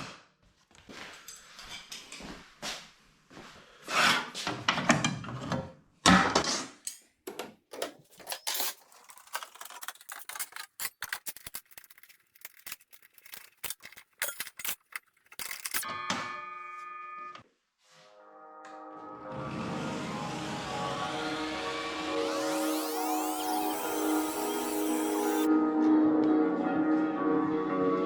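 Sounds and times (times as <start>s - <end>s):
clicks and knocks of handled objects: 6.9s - 15.9s
music: 15.8s - 28.0s.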